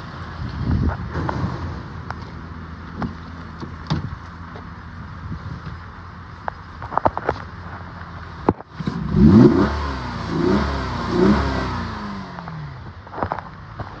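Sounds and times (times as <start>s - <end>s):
car engine revving: 8.9s - 12.5s.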